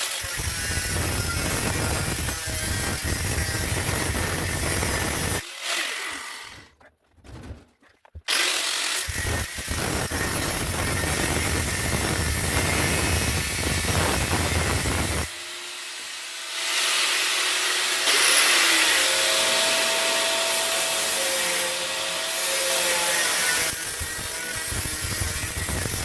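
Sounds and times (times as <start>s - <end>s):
power tool grinding metal: 0.0s - 6.7s, 8.3s - 26.0s.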